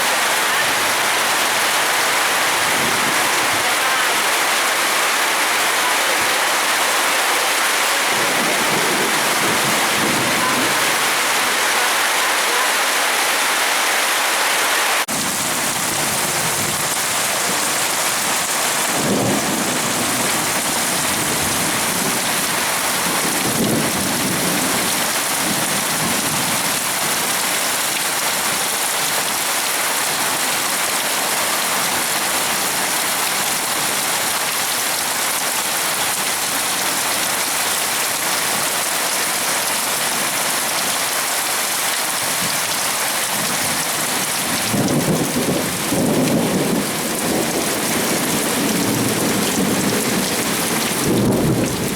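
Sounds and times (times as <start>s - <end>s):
heavy rain pouring: 0.0s - 51.9s
thunder rumbling: 7.7s - 11.8s, 15.1s - 26.4s, 44.6s - 51.9s.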